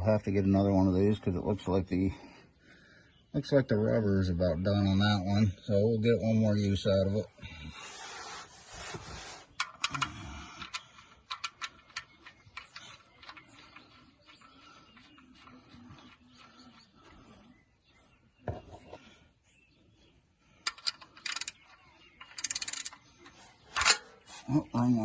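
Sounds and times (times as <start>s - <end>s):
metal tools clinking: 20.6s - 23.1s, 23.7s - 24.2s.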